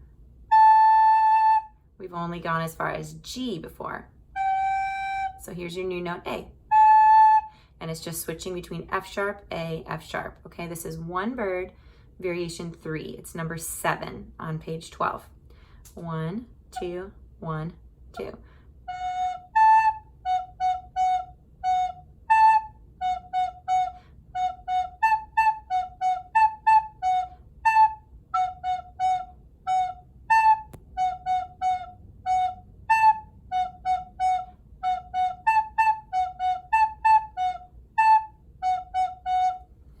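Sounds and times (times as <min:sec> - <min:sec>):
recorder playing a simple tune: 0:00.5 - 0:01.7, 0:04.4 - 0:05.4, 0:06.7 - 0:07.6, 0:18.2 - 0:39.7.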